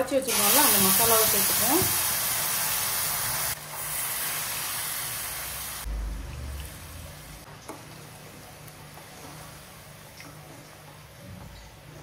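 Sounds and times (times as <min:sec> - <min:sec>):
paste sizzling in hot oil: 0:00.3 - 0:05.9.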